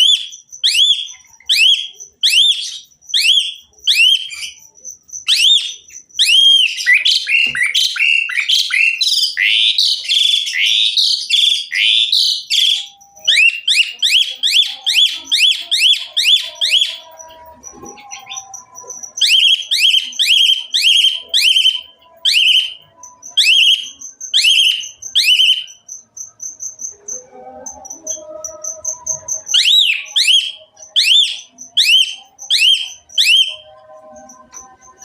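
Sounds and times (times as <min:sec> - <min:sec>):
starling singing whistled notes: 0:00.0 - 0:35.0
thin high steady tone: 0:12.8 - 0:35.0.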